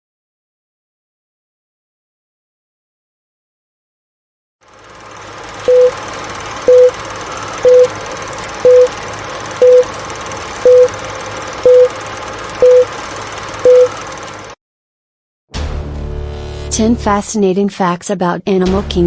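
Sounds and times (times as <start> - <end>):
short electronic beeps: 5.7 - 6.0, 6.7 - 7.0, 7.6 - 7.9, 8.6 - 8.9, 9.6 - 9.9, 10.6 - 10.9, 11.6 - 12.0, 12.6 - 12.9, 13.6 - 14.0.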